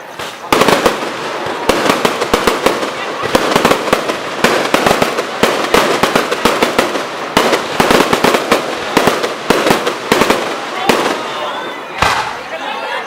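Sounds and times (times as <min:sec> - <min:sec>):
fireworks bangs: 0:00.0 - 0:12.8
fireworks crackling: 0:00.0 - 0:13.0.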